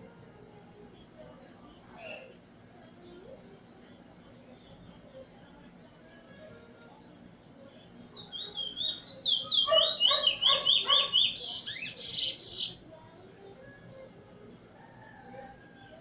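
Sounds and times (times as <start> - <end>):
finch singing whistled notes: 2.0 - 2.4, 8.2 - 12.8.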